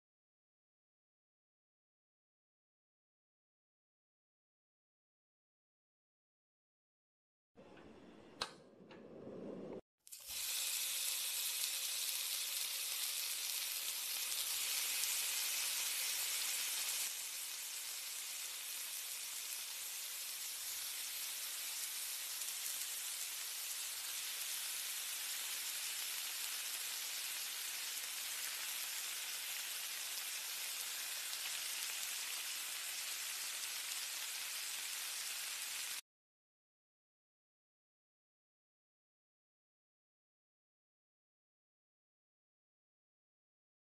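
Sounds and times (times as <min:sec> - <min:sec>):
batter sizzling on griddle: 0:10.1 - 0:36.0.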